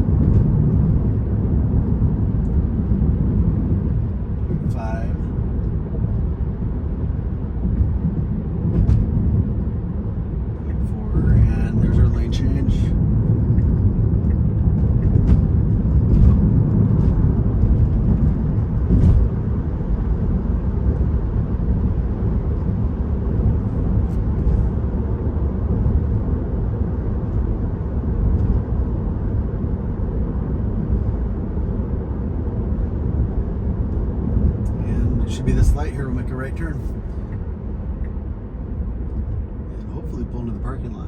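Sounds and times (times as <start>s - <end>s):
road and tyre rumble: 0.0s - 41.0s.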